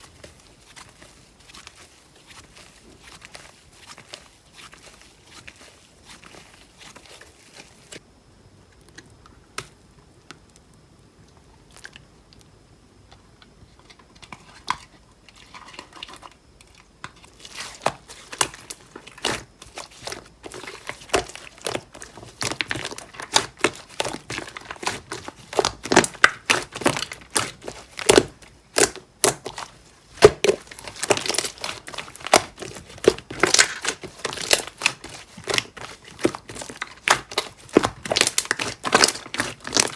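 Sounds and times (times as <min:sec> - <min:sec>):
slime squished by hand: 0:17.4 - 0:39.9.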